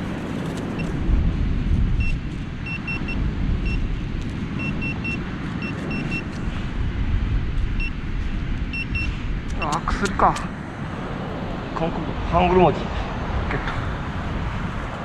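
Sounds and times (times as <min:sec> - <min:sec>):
wind buffeting microphone: 0:00.0 - 0:15.0
metal detector beeps: 0:02.0 - 0:03.9, 0:04.6 - 0:06.4, 0:07.8 - 0:08.0, 0:08.7 - 0:09.8.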